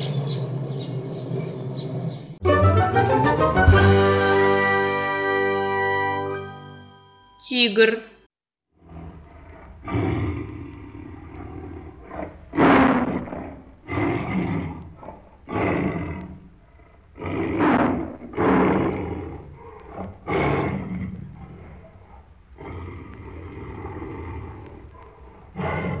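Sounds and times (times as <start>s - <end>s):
tiger roaring and growling: 8.7s - 26.0s.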